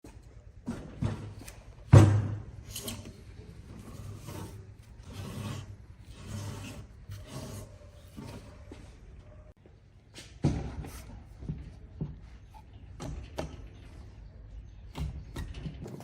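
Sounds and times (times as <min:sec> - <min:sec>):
hand tool scraping wood: 0:02.6 - 0:08.8.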